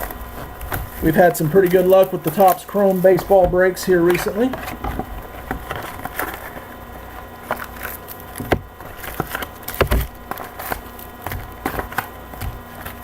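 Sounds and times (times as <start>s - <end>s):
dull thuds: 3.2s - 6.4s, 8.4s - 10.2s.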